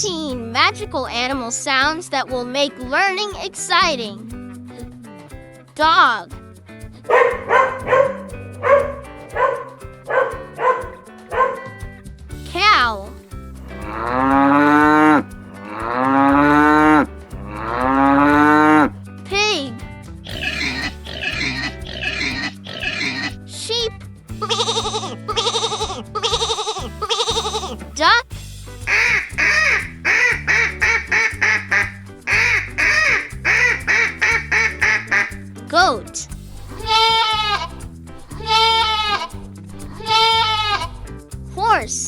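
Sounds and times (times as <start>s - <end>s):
light background music: 0.0s - 42.0s
duck quacking: 7.1s - 11.8s, 20.3s - 23.3s, 24.4s - 28.1s, 28.8s - 35.5s, 36.8s - 37.8s, 38.4s - 39.4s, 40.0s - 41.0s
cow mooing: 13.7s - 18.9s.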